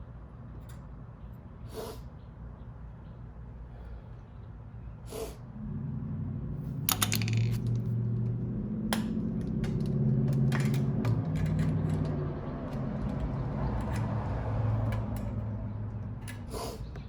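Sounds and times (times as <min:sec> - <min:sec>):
low mechanical hum: 0:00.0 - 0:17.0
hand tools clicking and clinking: 0:06.9 - 0:07.9, 0:09.2 - 0:14.2.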